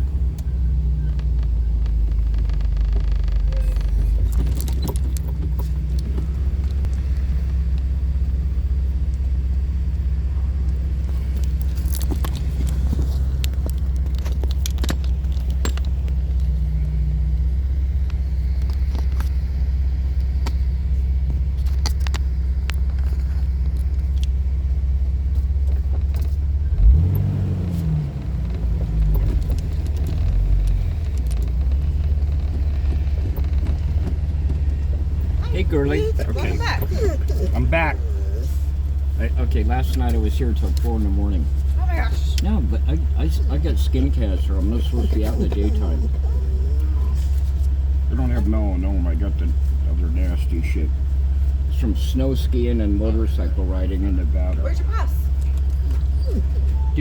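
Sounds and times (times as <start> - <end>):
vehicle bump: 0.0 - 7.9, 11.0 - 24.2, 25.2 - 57.0
car engine and road rumble: 0.0 - 57.0
light rattles: 1.1 - 7.9, 18.0 - 48.4.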